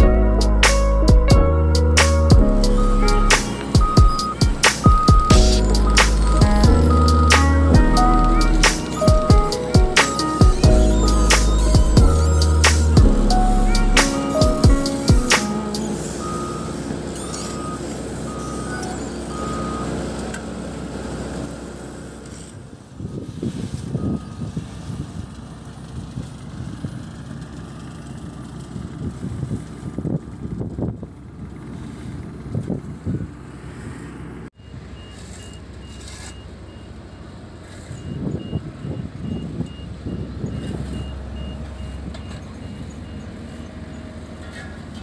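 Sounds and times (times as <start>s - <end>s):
diesel construction machinery running: 0.0s - 45.0s
reversing alarm beeping: 2.6s - 20.0s, 23.9s - 24.6s, 34.6s - 37.3s, 37.9s - 43.3s.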